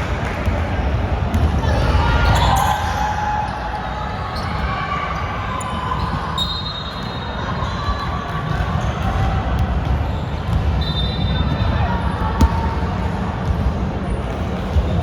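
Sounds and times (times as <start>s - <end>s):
ball bouncing on hardwood court: 1.3s - 1.6s, 11.5s - 13.8s.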